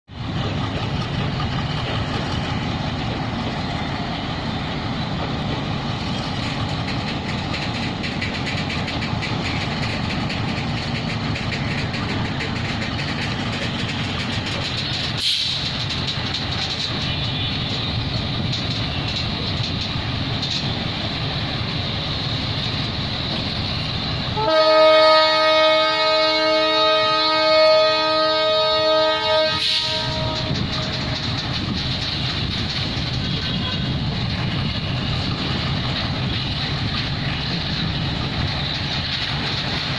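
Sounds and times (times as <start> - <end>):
train wheels rumbling on rail: 0.0 - 39.9
clicks over rail joints: 5.5 - 20.8, 29.0 - 33.6.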